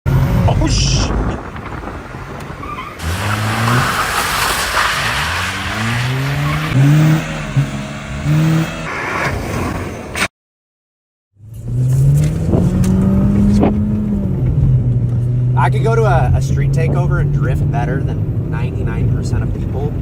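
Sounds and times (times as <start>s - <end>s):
car engine revving: 0.1s - 9.9s, 11.4s - 18.9s
tyres squealing: 2.6s - 8.6s.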